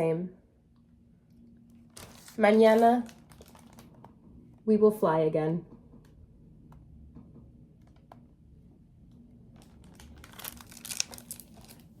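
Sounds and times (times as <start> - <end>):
crinkly rustling: 1.8 - 4.2, 9.5 - 12.0.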